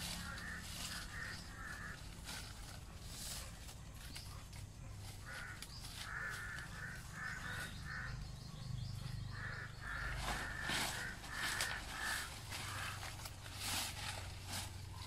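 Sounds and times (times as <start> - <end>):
bird repeated short calls: 0.1 - 2.2, 5.2 - 8.3, 9.3 - 13.4.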